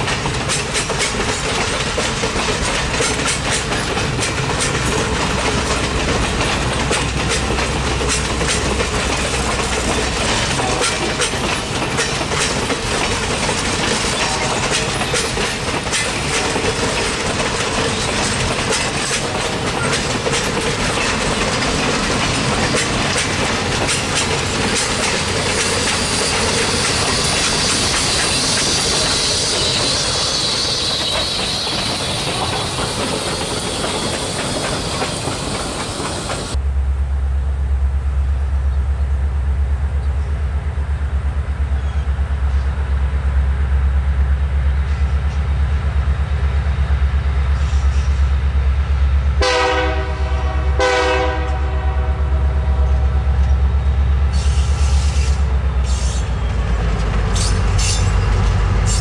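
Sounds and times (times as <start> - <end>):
steam locomotive hiss: 0.0 - 36.6, 54.2 - 59.0
wheels clicking over rail joints: 0.0 - 36.6, 54.3 - 59.0.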